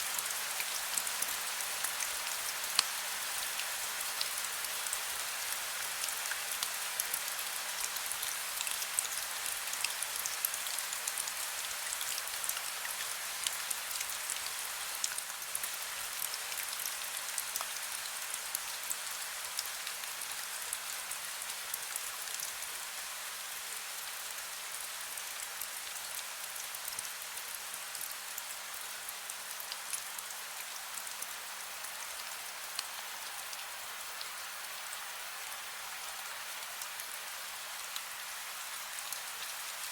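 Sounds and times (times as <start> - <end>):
raindrops ticking on a surface: 0.1 - 33.7.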